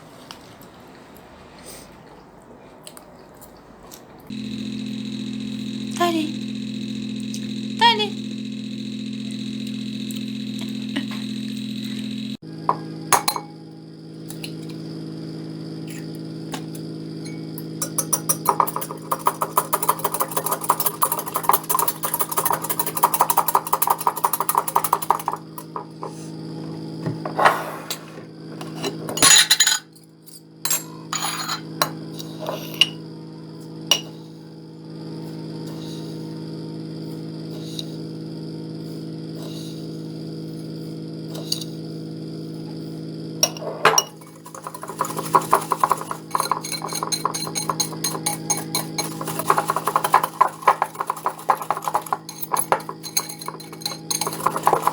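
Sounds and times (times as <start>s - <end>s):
appliance hum: 0.0s - 54.9s
utensil clattering against bowl: 12.7s - 13.5s, 17.6s - 26.2s, 43.4s - 54.9s
dishes and cutlery clinking: 17.6s - 26.2s, 28.6s - 29.9s, 30.7s - 31.7s, 43.4s - 54.9s.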